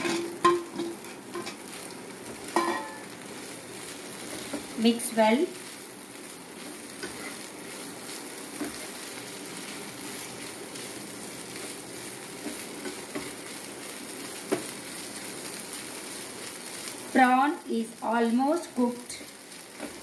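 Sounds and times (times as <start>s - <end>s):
spatula scraping and knocking pan: 0.0s - 1.7s, 2.3s - 3.1s, 7.0s - 7.5s, 8.5s - 9.0s, 12.4s - 13.6s
prawns and onions sizzling in pan: 0.0s - 20.0s.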